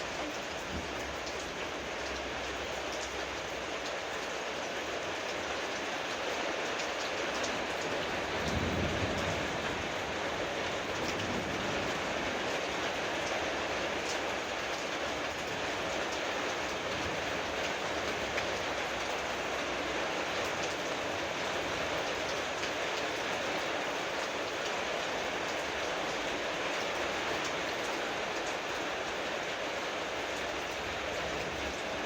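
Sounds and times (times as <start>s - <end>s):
raindrop ticks: 0.0s - 9.7s, 10.6s - 19.6s, 20.2s - 21.0s
heavy rain downpour: 0.0s - 32.0s.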